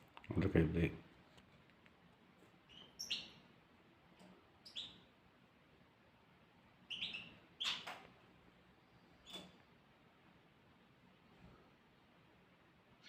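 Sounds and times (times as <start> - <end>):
small birds chirping: 2.5 - 5.2, 6.7 - 9.8.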